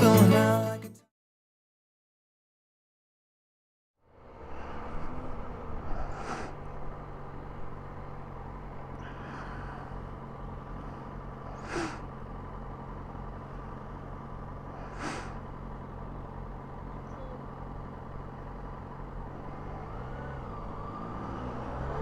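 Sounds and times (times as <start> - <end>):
motorcycle engine idling: 5.1 - 20.9.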